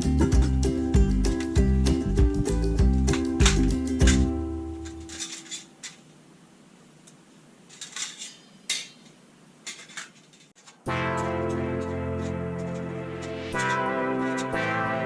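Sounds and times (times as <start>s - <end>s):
music: 0.0s - 5.1s, 10.9s - 15.0s
light metal clinks and scrapes: 4.8s - 6.1s, 7.7s - 10.9s.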